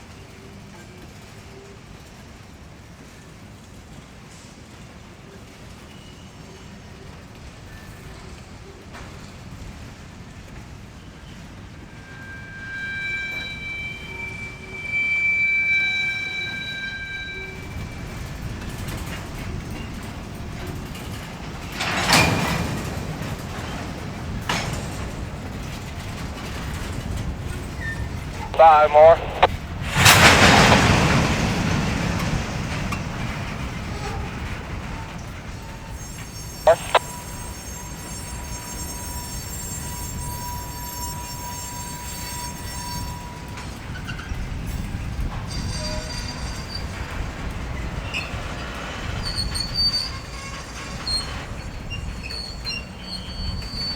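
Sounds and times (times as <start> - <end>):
high wheel squeal: 11.2 - 20.1, 35.6 - 44.5, 45.5 - 53.9
freight cars rumbling: 17.5 - 37.0, 43.6 - 53.9.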